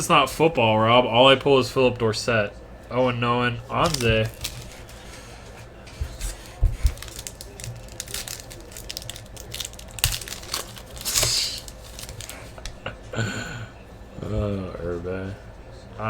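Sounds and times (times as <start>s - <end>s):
card wrappers crinkling: 3.7s - 5.3s, 6.0s - 12.9s
pack tearing open: 3.8s - 5.0s, 6.2s - 12.8s.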